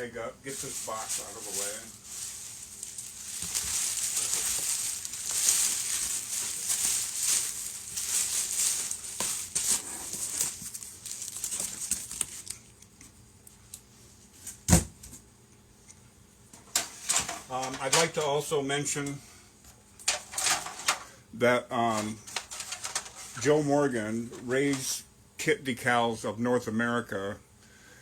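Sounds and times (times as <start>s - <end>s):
plastic bag crinkling: 0.0s - 12.8s, 21.9s - 23.5s.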